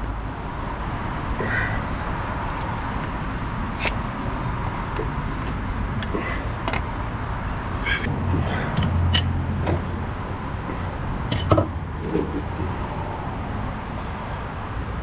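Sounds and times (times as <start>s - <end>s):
steady low hum: 0.0s - 14.1s
metal clinks and knocks: 7.9s - 10.1s.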